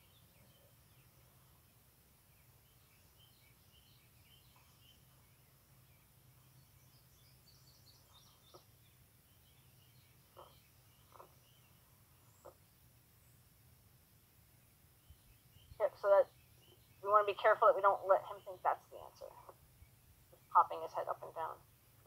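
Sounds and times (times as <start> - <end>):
faint birds chirping: 0.0 - 22.0.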